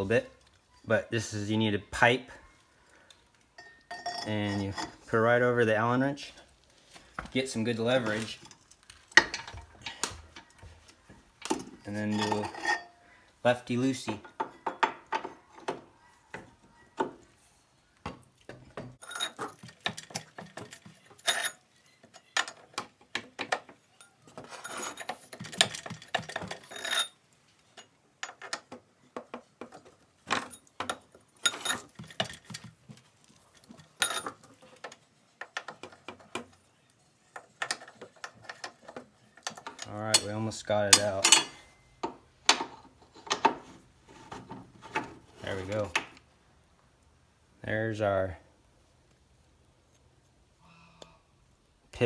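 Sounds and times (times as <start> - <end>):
metallic clinks and clanks: 3.4 - 5.3, 7.5 - 13.1, 18.6 - 28.7, 33.5 - 36.5, 37.2 - 43.7.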